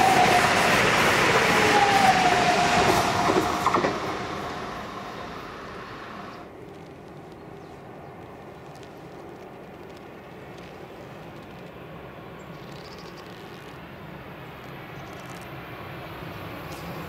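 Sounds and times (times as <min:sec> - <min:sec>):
electric train rolling away: 0:00.0 - 0:06.7.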